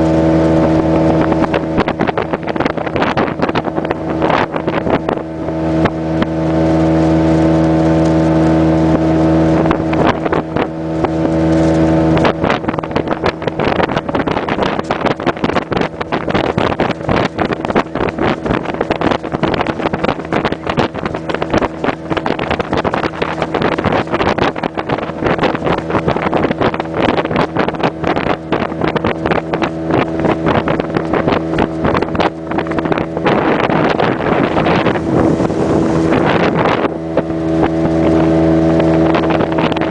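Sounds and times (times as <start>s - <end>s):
motorboat engine running: 0.0s - 39.9s
wind buffeting microphone: 0.0s - 39.9s.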